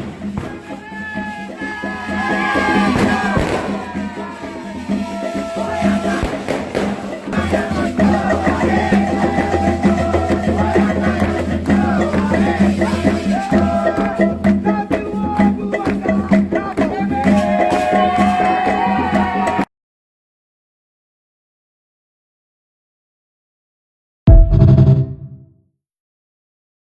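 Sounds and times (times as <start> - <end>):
steady percussion: 0.0 - 19.6, 24.3 - 25.4
voices singing a chant: 0.0 - 19.6.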